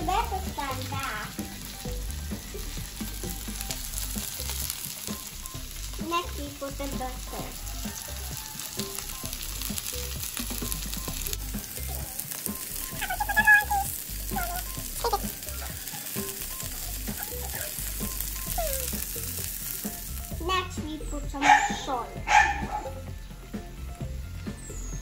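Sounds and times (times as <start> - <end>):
broccoli sizzling in a pan: 0.0 - 22.2
high-pitched wavering cry: 12.7 - 19.1.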